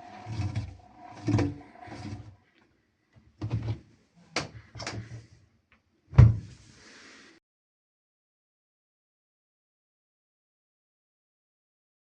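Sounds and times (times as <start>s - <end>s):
door knocks and clunks: 6.1s - 6.5s.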